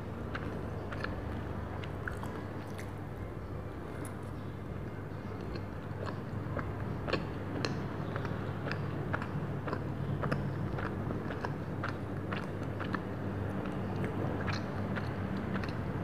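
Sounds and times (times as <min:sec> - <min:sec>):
steady low hum: 0:00.0 - 0:16.0
biting and chewing: 0:00.2 - 0:03.0, 0:05.4 - 0:16.0
wet mouth clicks: 0:02.0 - 0:03.0.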